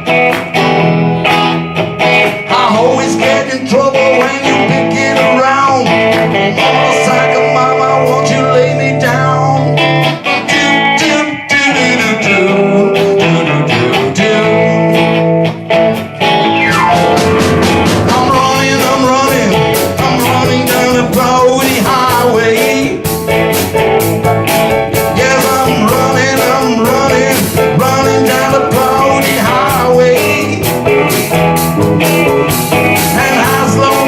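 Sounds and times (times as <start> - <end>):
blues-rock band playing: 0.0 - 34.0
person singing: 2.2 - 15.2, 16.7 - 23.2, 24.8 - 31.3, 32.8 - 34.0.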